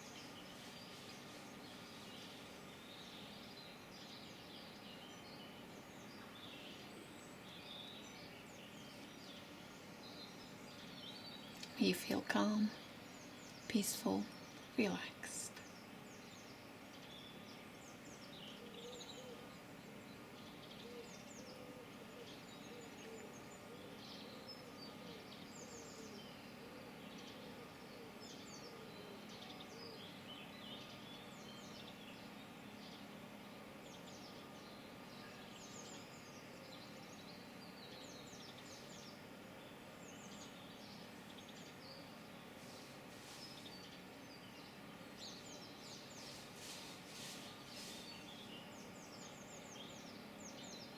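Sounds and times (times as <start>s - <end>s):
birds chirping and singing: 0.0s - 50.9s
faint steady hum: 0.0s - 50.9s
lower wavering bird calls: 15.6s - 50.9s.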